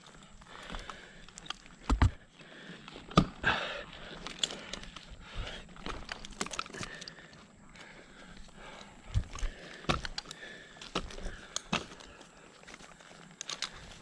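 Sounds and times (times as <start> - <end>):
climbing gear knocking on tree trunk: 1.7 - 2.2, 9.1 - 12.1.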